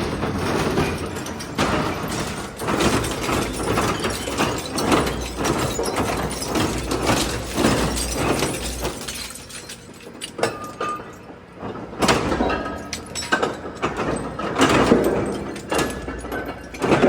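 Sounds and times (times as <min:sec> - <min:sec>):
shredder crushing metal: 0:00.0 - 0:11.0.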